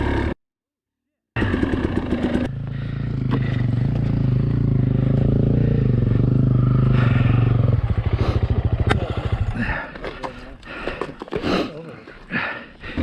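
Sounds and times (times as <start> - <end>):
dirt bike engine revving: 1.4 - 9.9.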